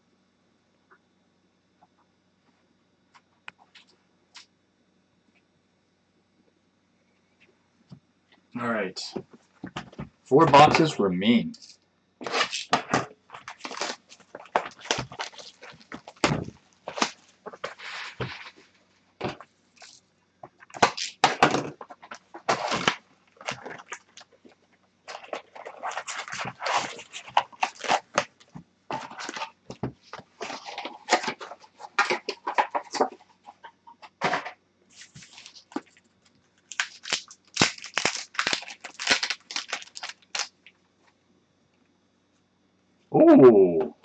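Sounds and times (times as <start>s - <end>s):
card packs crinkling and tearing: 12.2s - 18.6s, 20.6s - 24.4s, 25.1s - 33.2s, 35.0s - 40.7s.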